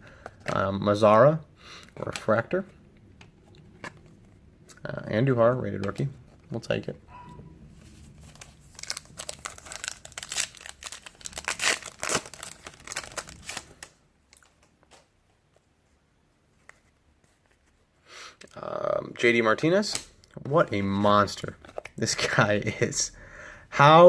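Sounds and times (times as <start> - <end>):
foil wrapper tearing and crinkling: 8.2 - 14.5.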